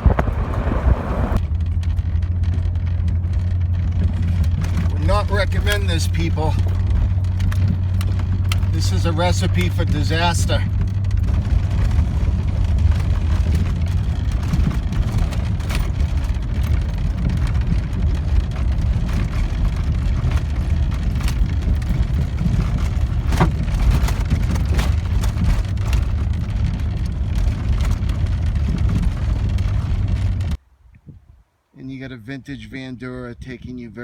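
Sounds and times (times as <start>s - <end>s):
rattles: 0.0s - 30.6s
van engine rumbling: 0.0s - 30.6s.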